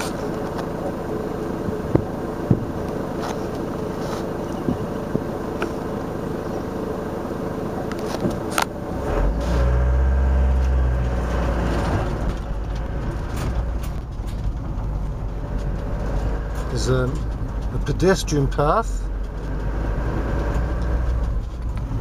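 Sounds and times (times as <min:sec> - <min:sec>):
van engine and road noise: 0:00.0 - 0:22.0
small clicks and rattles: 0:11.0 - 0:22.0.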